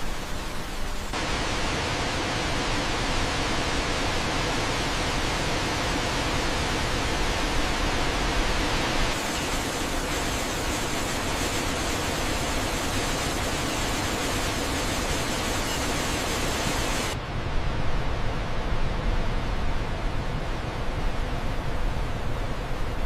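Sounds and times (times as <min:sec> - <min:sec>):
waterfall rushing: 0:09.0 - 0:17.2.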